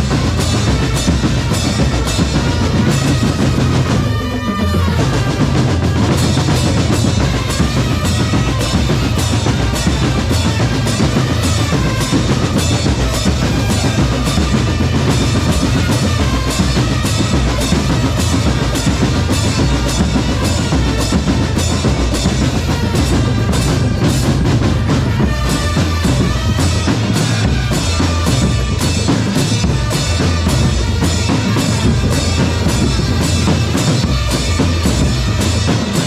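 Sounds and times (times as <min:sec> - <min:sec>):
marching bass and snare drums: 0:00.0 - 0:36.0.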